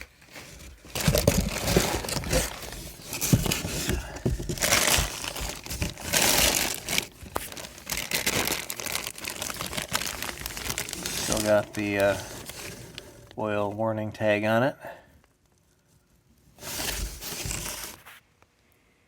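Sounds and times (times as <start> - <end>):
packaging crinkling: 0.0 - 13.4, 16.6 - 18.2.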